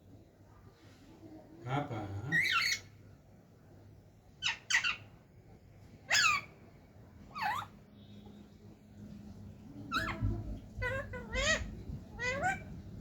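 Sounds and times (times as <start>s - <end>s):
parrot squawking: 2.3s - 2.9s, 4.4s - 5.1s, 6.1s - 6.5s, 7.3s - 7.8s, 9.9s - 12.8s.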